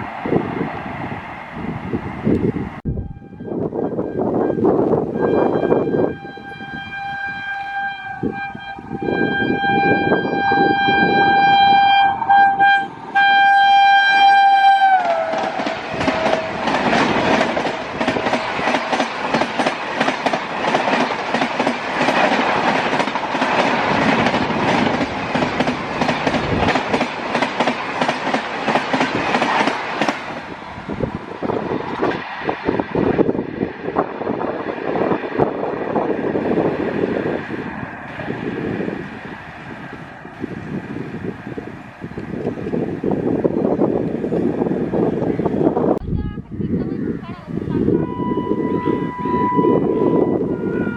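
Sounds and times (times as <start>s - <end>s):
train horn: 2.9s - 16.8s, 47.8s - 50.9s
train wheels clickety-clack: 15.0s - 30.6s.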